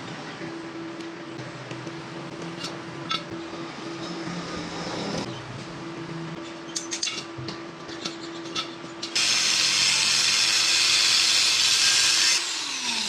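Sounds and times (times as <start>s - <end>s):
welding arc crackling hiss: 9.2s - 12.4s.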